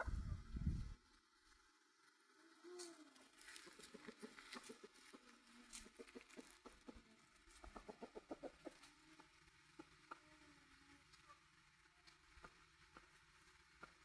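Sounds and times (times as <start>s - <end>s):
chickens clucking: 0.0s - 0.4s, 3.2s - 10.5s, 11.2s - 14.0s.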